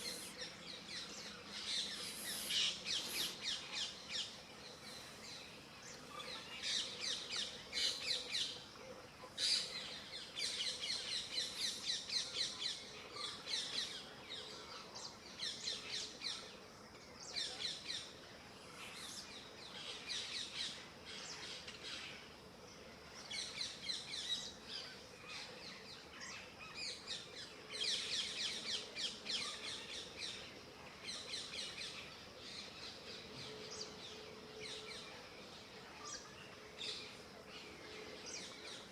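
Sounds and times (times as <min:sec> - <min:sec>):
small birds chirping: 0:00.0 - 0:08.6.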